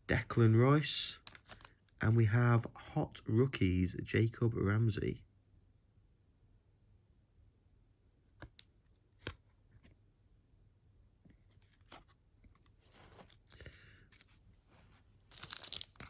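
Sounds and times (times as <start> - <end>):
soft card rustle: 1.1 - 2.0, 11.2 - 16.0.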